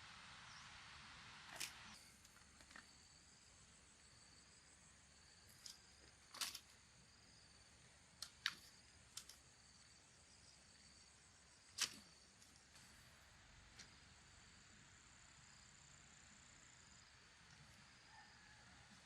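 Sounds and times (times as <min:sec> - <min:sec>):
faint high-pitched hum: 0:00.0 - 0:19.0.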